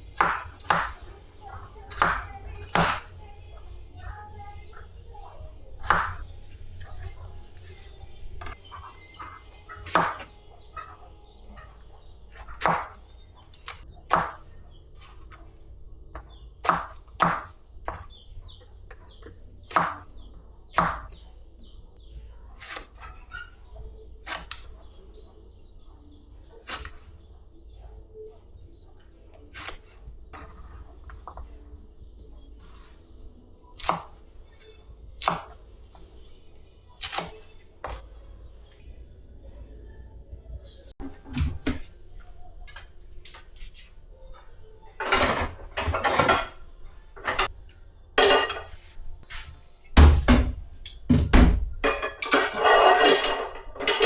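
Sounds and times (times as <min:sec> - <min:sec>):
faint bird chirps: 0:00.0 - 0:41.0.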